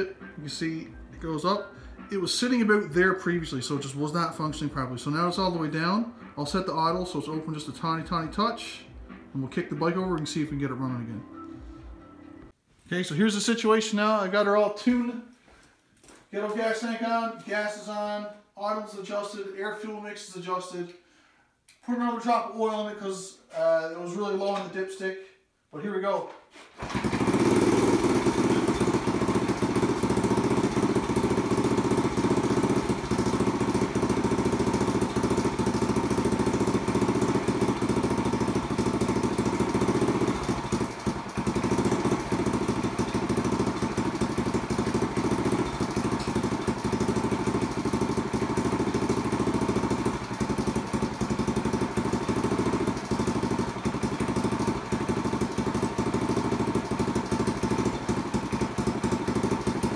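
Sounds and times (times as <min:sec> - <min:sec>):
motorcycle engine idling: 0:26.8 - 0:59.9.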